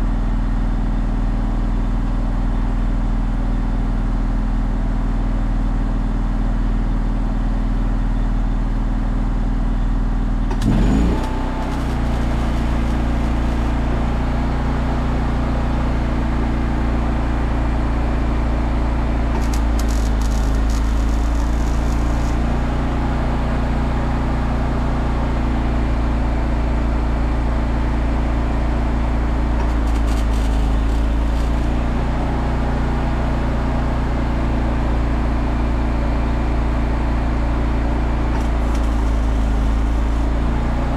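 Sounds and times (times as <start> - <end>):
welding machine engine running: 10.3 - 16.2, 18.6 - 25.5, 28.7 - 34.5, 37.3 - 40.9
brief crackles: 10.6 - 13.9, 19.4 - 22.4, 29.6 - 31.8, 38.4 - 40.3.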